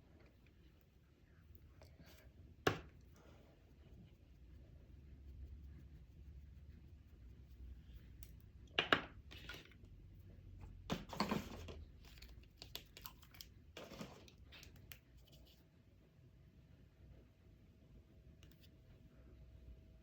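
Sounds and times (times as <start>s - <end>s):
handling rustles and scrapes: 0.0s - 15.8s.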